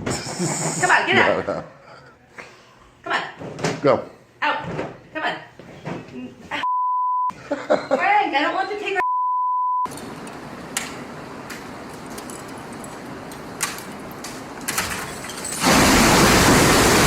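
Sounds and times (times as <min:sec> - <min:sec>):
censor bleep: 0:06.6 - 0:07.3, 0:09.0 - 0:09.9.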